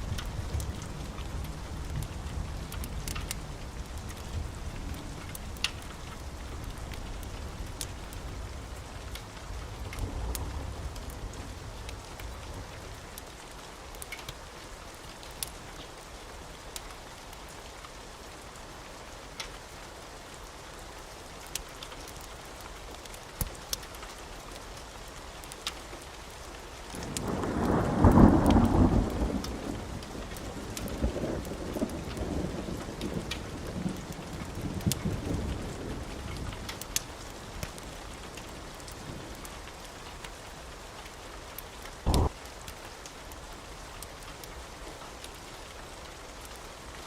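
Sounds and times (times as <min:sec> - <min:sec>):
wood fire crackling: 0:00.0 - 0:47.0
deep rumble: 0:42.1 - 0:42.3.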